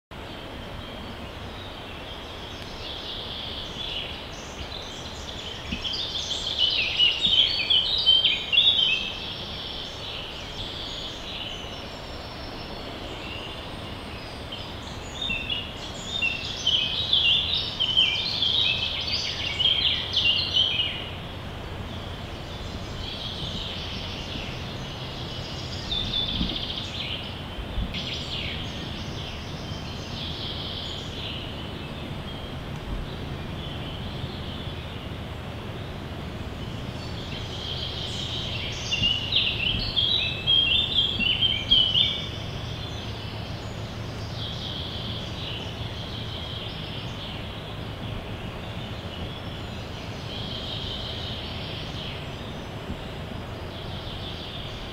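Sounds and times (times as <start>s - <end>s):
birds singing: 0.1s - 54.9s
low background noise: 0.1s - 54.9s.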